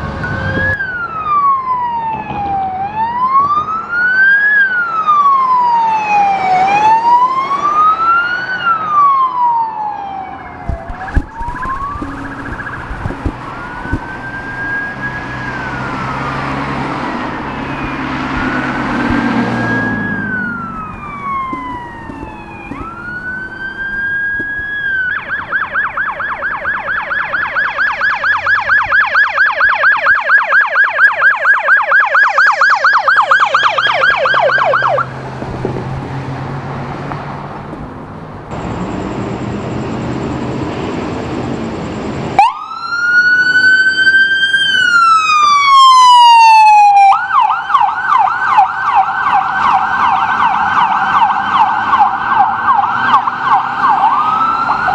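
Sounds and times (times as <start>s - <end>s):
engine and road noise: 10.6s - 30.3s, 33.2s - 54.9s.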